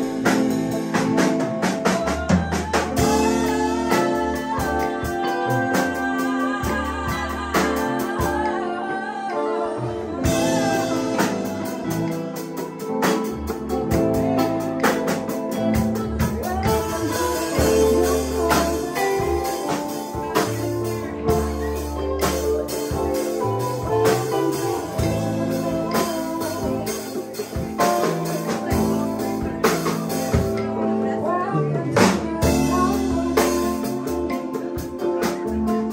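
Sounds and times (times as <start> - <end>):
bass: 0.0 - 35.9
guitar: 0.0 - 35.9
person singing: 0.0 - 35.9
percussion beat: 10.2 - 30.7.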